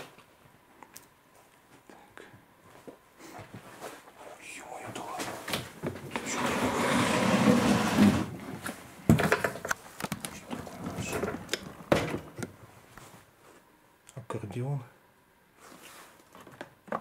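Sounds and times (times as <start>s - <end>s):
objects scraping and rustling: 5.0s - 12.2s, 15.6s - 16.6s.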